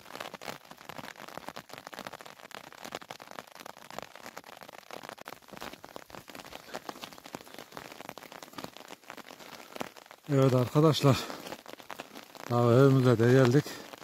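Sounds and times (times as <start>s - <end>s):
steady rain patter: 0.0s - 14.0s.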